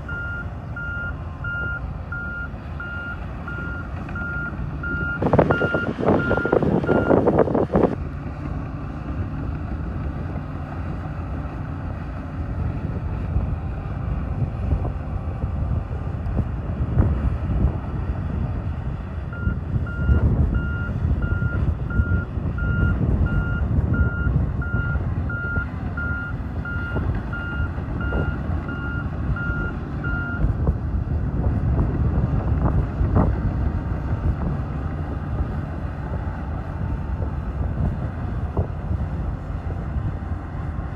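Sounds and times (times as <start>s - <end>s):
bulldozer diesel engine rumbling: 0.0s - 40.9s
backup alarm beeping: 0.1s - 7.2s.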